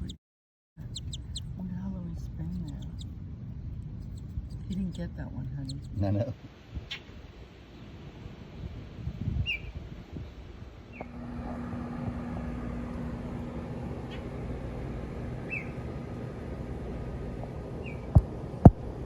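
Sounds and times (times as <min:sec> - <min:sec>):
baby bird chirping: 0:00.8 - 0:06.2, 0:06.8 - 0:07.2, 0:09.4 - 0:09.8, 0:14.0 - 0:14.4, 0:15.4 - 0:15.9, 0:17.8 - 0:18.2
steady low hum: 0:00.8 - 0:19.0.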